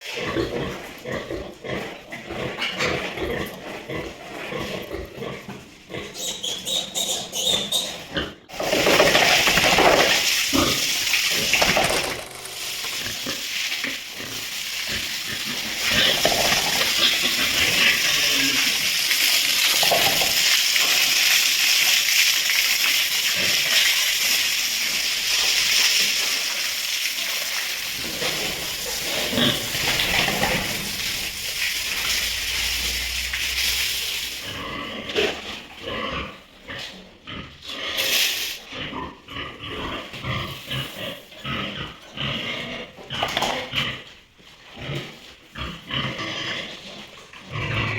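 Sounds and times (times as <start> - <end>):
pigs grunting and squealing: 0.0 - 47.9
water spraying hiss: 9.5 - 34.8.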